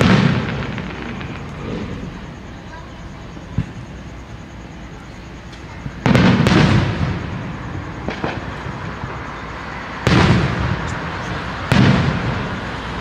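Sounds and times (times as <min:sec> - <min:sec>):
fireworks booming: 0:00.0 - 0:13.0
fireworks crackling: 0:00.0 - 0:13.0.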